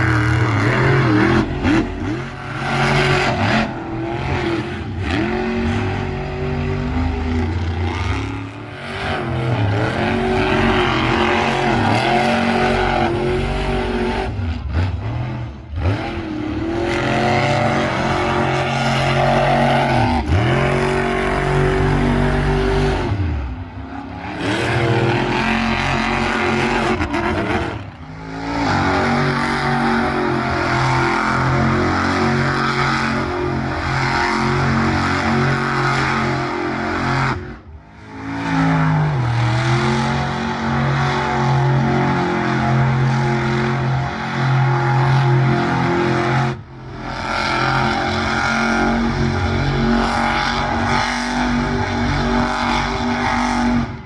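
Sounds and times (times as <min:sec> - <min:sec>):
monster truck engines revving: 0:00.0 - 0:54.0.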